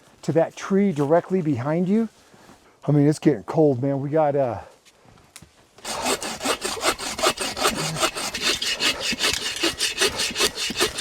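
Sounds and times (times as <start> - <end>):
hand saw cutting wood: 5.8 - 11.0.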